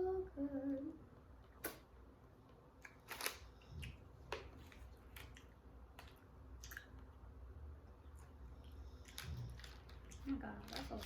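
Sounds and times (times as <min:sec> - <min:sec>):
chewing crunches: 0:02.8 - 0:07.1.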